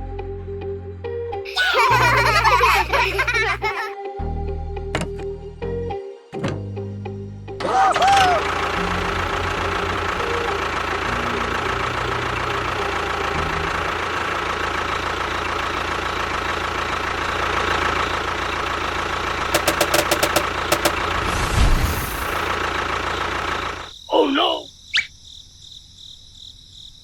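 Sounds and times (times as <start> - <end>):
small engine running: 1.8 - 3.8, 7.6 - 23.9
sharp clicks: 19.6 - 22.4.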